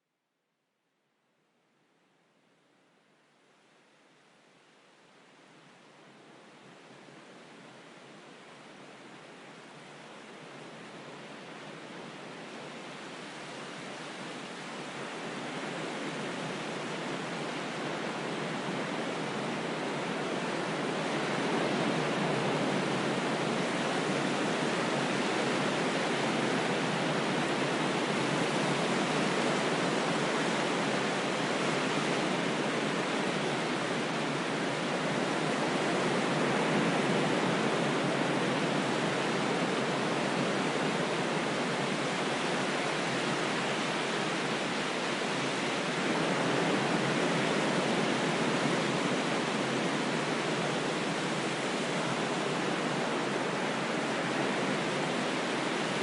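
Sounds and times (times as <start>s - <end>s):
ocean surf rushing: 14.5s - 56.0s.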